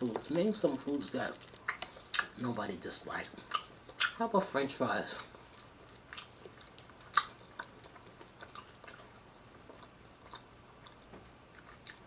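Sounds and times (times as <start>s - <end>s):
person chewing food: 0.0s - 4.2s, 5.0s - 12.0s
mouth clicks: 3.5s - 4.2s.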